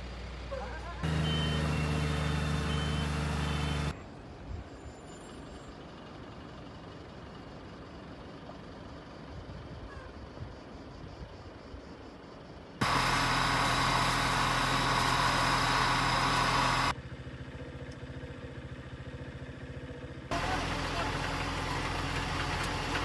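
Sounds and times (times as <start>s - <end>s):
heavy vehicle engine running: 0.0s - 4.0s, 5.4s - 9.7s, 12.8s - 23.0s
low outdoor background: 0.0s - 23.0s
short high beeps: 1.1s - 3.9s.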